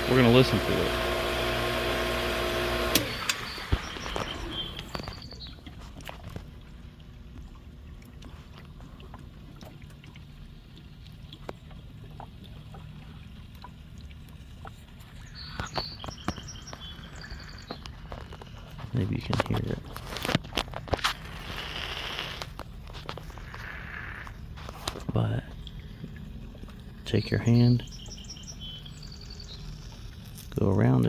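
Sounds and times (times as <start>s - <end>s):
pool pump humming: 0.0s - 31.0s.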